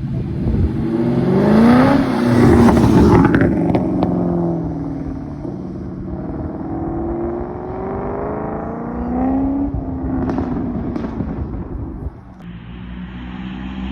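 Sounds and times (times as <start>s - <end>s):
car engine revving: 0.0s - 13.9s
exhaust cracks: 9.0s - 12.4s.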